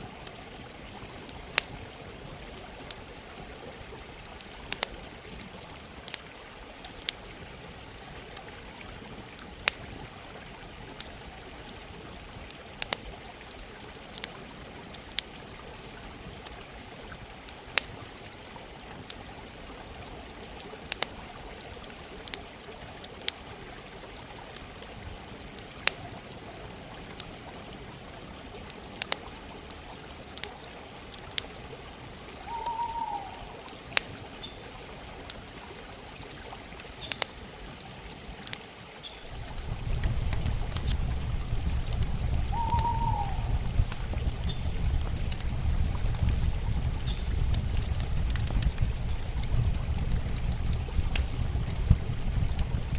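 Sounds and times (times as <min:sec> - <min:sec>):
running stream: 0:00.0 - 0:52.9
campfire crackling and popping: 0:01.2 - 0:02.2, 0:31.1 - 0:52.9.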